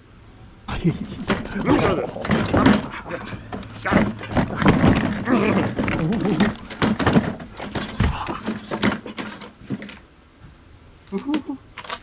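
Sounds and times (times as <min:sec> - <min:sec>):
person making wordless sounds: 0:01.1 - 0:06.7.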